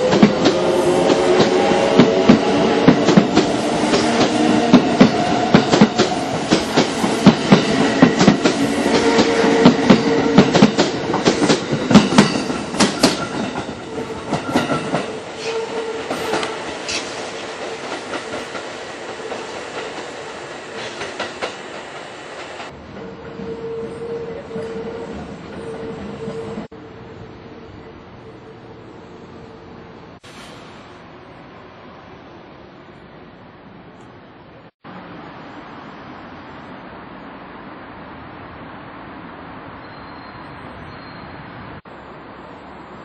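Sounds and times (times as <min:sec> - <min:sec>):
train wheels clacking over rail joints: 0:00.0 - 0:22.8.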